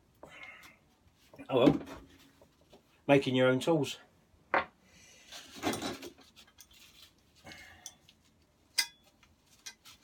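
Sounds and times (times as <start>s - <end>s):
metal tools clinking and scraping: 5.4s - 7.0s, 7.8s - 10.0s.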